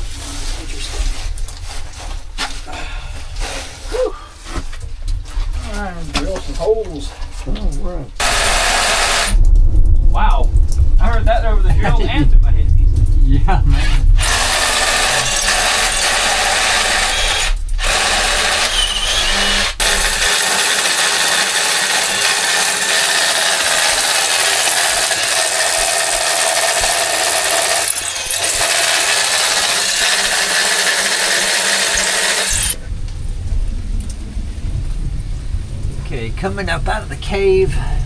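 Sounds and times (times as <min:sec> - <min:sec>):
low rumble: 0:07.7 - 0:20.3, 0:32.8 - 0:38.0
power drill boring into rock: 0:08.2 - 0:09.4, 0:13.7 - 0:32.8.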